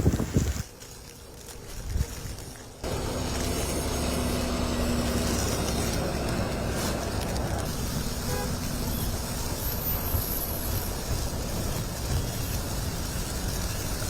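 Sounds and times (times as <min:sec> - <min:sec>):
city street traffic rumble: 0:00.0 - 0:14.0.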